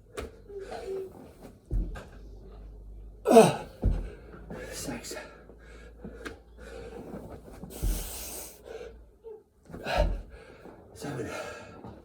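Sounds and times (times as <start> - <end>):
man breathing heavily: 3.3 - 9.1, 9.8 - 11.8
body thudding on floor: 3.6 - 4.2, 7.6 - 8.3.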